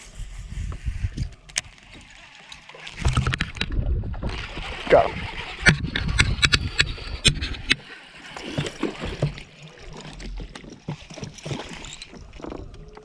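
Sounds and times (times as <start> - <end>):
water splashing: 1.7 - 13.0
gear knocking in a boat: 2.9 - 7.8, 8.4 - 13.0.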